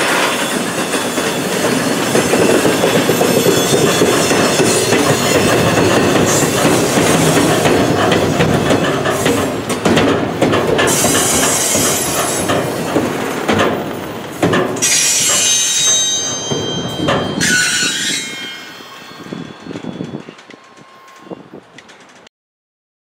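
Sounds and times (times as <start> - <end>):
high wheel squeal: 0.0 - 8.3, 10.9 - 12.5, 14.8 - 22.2
wheels clicking over rail joints: 0.0 - 22.3.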